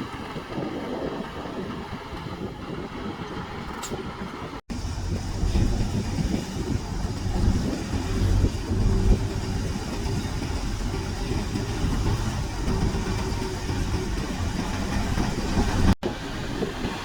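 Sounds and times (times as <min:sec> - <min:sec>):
diesel engine rumbling: 0:00.2 - 0:17.0.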